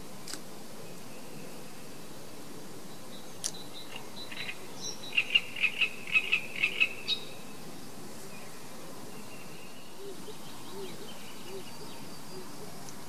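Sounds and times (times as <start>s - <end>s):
bird chirping: 2.9s - 7.6s, 8.4s - 12.9s.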